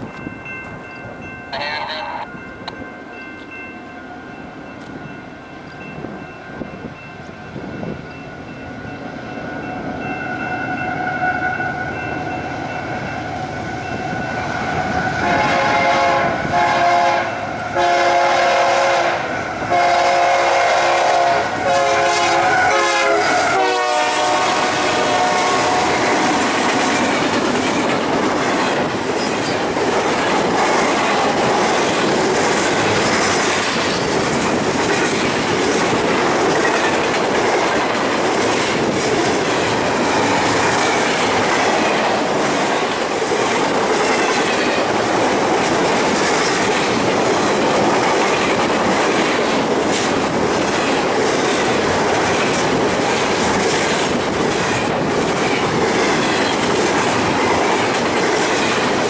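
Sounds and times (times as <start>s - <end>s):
freight train cars rolling past: 0.0s - 59.0s
wheels clickety-clack over rail joints: 24.1s - 59.0s.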